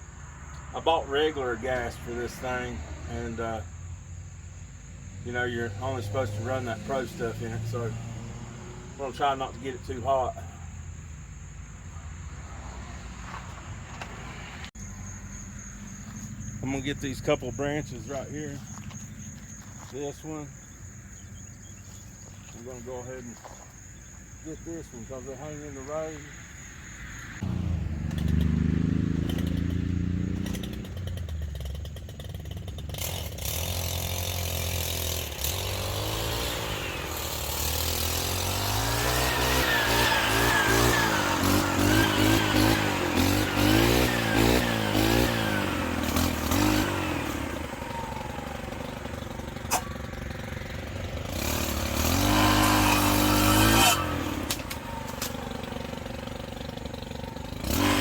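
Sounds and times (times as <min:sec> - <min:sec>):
brushcutter engine revving: 0:00.6 - 0:03.6, 0:05.1 - 0:10.6, 0:27.4 - 0:58.0.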